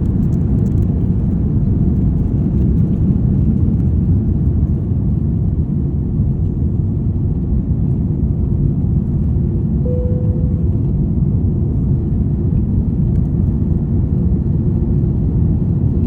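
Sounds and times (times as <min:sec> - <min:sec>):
jet engines rumbling: 0:04.7 - 0:12.5.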